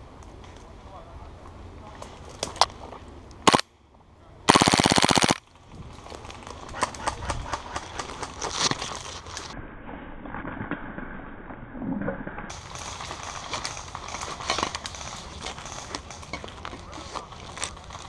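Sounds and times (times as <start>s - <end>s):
sharp crack: 3.4s - 3.7s, 4.5s - 5.4s
airsoft gun full-auto burst: 4.5s - 5.4s.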